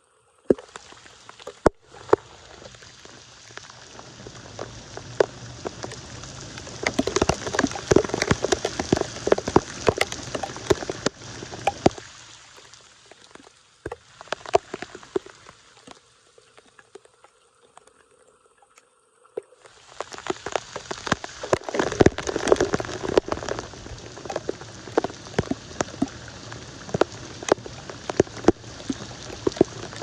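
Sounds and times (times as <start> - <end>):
water splashing and pattering: 0.4 - 30.0
sharp ticks: 6.8 - 12.0.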